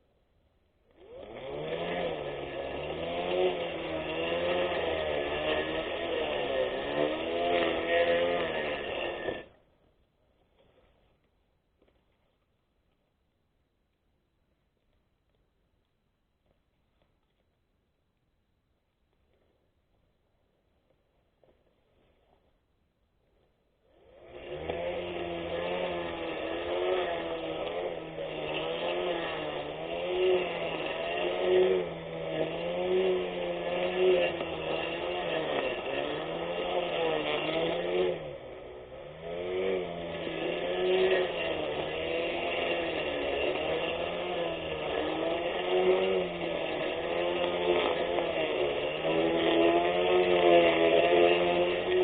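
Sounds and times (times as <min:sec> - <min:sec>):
electric lawn mower motor whine: 0:00.9 - 0:09.6, 0:23.9 - 0:52.0.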